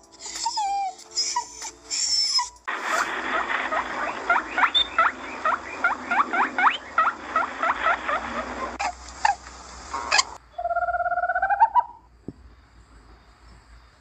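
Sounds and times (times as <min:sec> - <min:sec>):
puppy whimpering: 0:00.2 - 0:02.6
squeaky animal chirps: 0:00.2 - 0:09.4, 0:10.1 - 0:12.1
steady hiss: 0:02.6 - 0:10.4.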